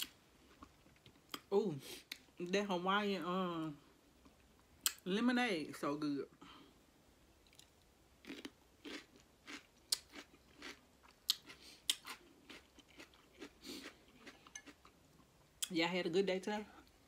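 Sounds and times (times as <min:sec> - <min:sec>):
crisp cucumber chewing crunches: 0:07.5 - 0:14.8.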